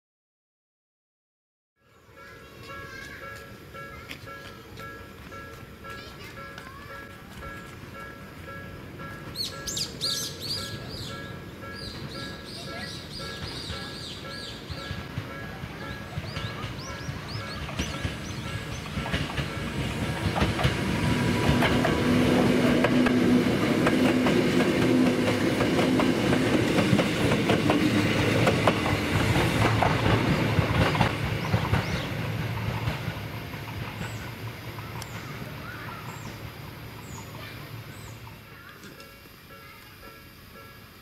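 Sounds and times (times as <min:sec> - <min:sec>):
steady train hum: 0:01.9 - 0:41.0
train wheels clacking over rail joints: 0:11.9 - 0:35.4.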